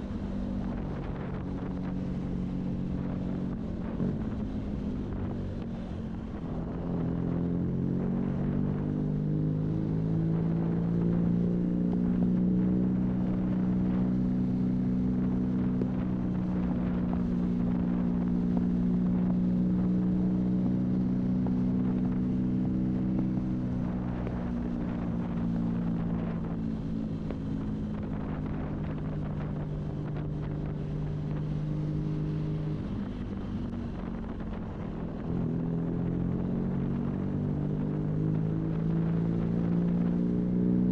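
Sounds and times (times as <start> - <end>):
wind buffeting microphone: 12.1 - 40.3.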